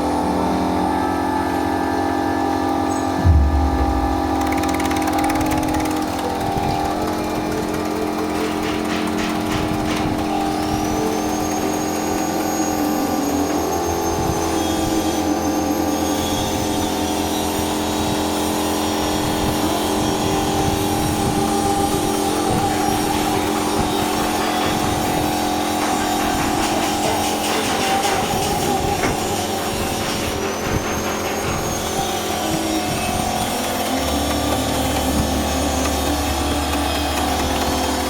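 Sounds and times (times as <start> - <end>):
slicing machine motor hum: 1.3 - 11.1
thin high whine: 2.9 - 6.4.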